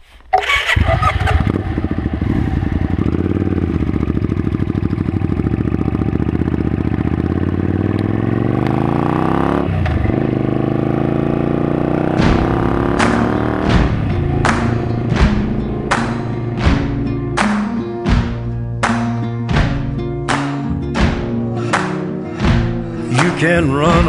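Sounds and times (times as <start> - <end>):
motorcycle engine idling and revving: 0.4 - 18.9.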